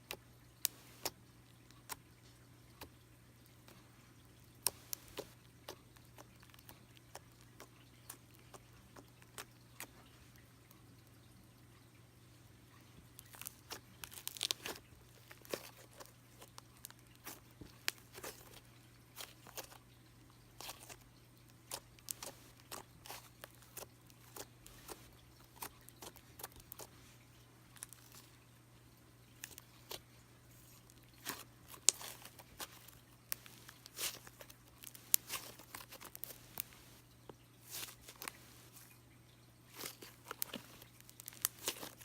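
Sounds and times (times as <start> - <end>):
slime squished by hand: 13.2 - 19.8, 29.4 - 37.0, 37.6 - 38.9, 39.7 - 42.0
sticky clicks and crackling pops: 39.8 - 42.0.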